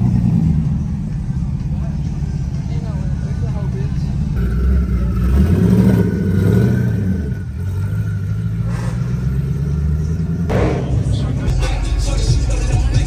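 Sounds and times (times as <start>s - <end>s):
car engine revving: 0.0s - 13.0s
short sharp noise: 10.5s - 11.8s.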